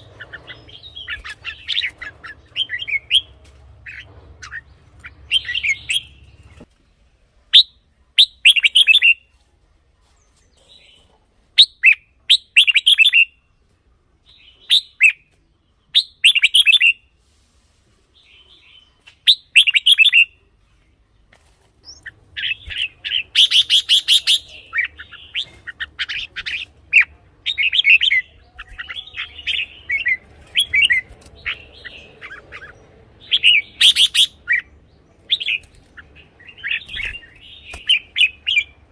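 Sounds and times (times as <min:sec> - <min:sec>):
bird singing chirpy phrases: 0:00.0 - 0:09.3, 0:21.8 - 0:38.9.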